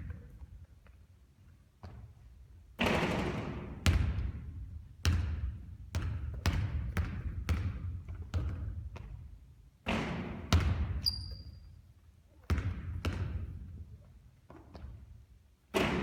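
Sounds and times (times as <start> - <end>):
basketball bouncing on court floor: 1.8 - 2.2, 2.8 - 11.6, 12.4 - 15.1.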